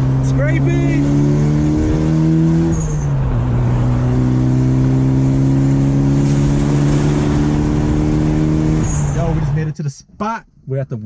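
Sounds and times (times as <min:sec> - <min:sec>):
turbocharged car engine: 0:00.0 - 0:09.8.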